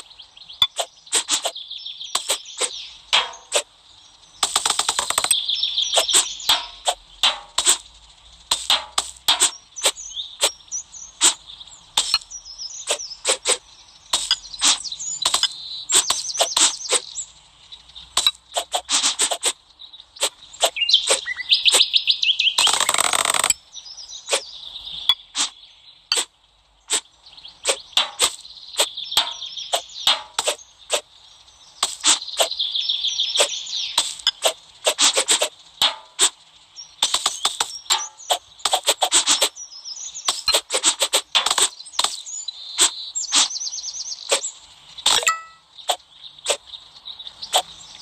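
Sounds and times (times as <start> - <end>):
birds chirping and trilling: 0.0 - 48.0
blade slicing: 0.7 - 1.5, 11.2 - 11.4, 12.9 - 13.6, 14.2 - 17.1, 18.2 - 19.6, 27.6 - 28.4, 33.4 - 36.4, 38.7 - 39.5, 40.3 - 42.2.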